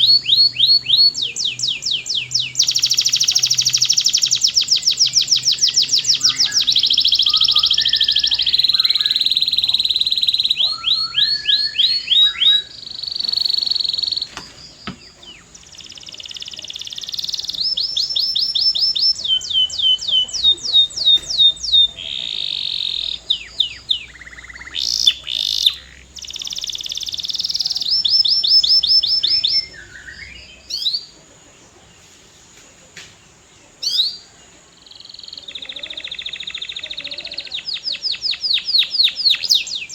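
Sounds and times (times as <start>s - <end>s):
canary singing trills: 0.0s - 32.0s, 33.4s - 39.9s.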